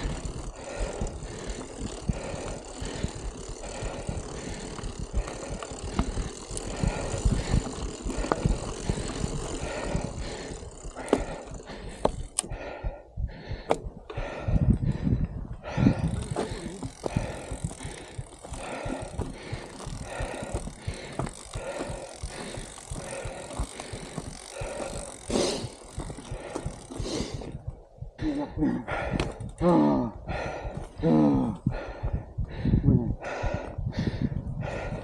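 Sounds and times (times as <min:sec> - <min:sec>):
bicycle rattling: 0:00.0 - 0:35.0
wind buffeting microphone: 0:00.0 - 0:35.0.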